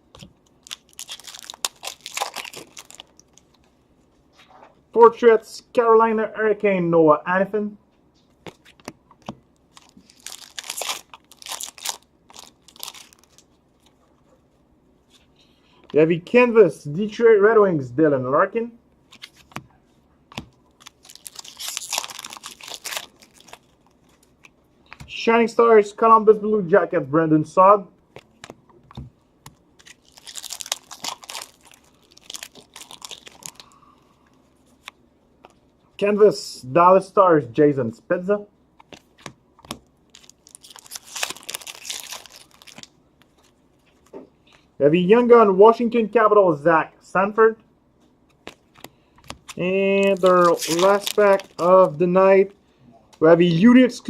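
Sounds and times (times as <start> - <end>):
foil wrapper tearing and crinkling: 0.6 - 3.4, 9.7 - 13.5, 20.8 - 24.3, 29.8 - 33.7, 39.7 - 42.9, 49.3 - 51.9.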